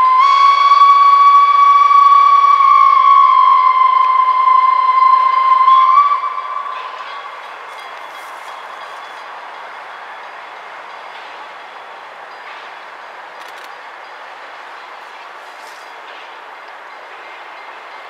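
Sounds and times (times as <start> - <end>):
locomotive horn: 0.0 - 7.4
train rumbling on track: 0.0 - 18.0.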